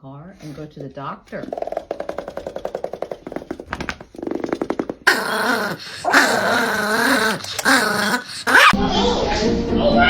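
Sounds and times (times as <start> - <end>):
dog growling: 0.4 - 8.8
dog howling and whining: 5.1 - 8.8.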